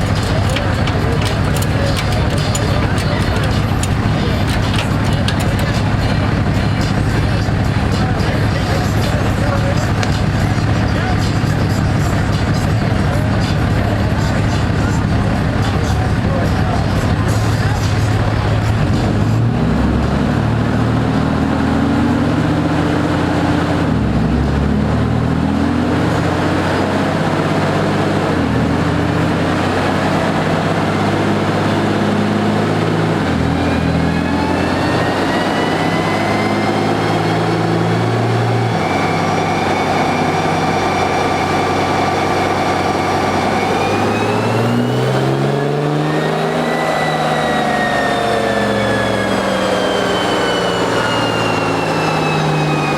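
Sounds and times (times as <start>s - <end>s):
diesel engine at full throttle: 0.0s - 52.9s
rising whine: 32.8s - 52.9s.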